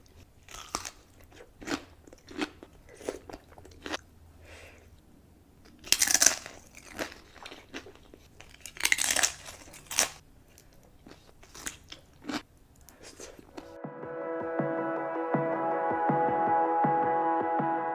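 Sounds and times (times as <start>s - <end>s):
chewing sounds: 0.0s - 4.0s, 5.6s - 13.8s
crunchy bites: 0.4s - 4.0s, 5.6s - 13.8s.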